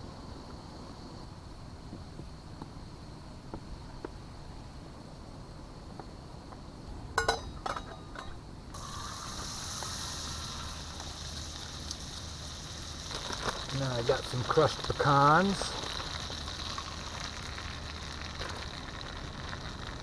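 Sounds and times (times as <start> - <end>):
butter sizzling in a pan: 8.7 - 20.0.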